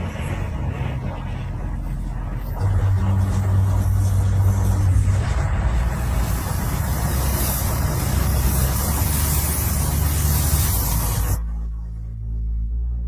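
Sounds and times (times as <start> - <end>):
low background music: 0.0 - 13.0
loud spraying hiss: 5.8 - 11.4.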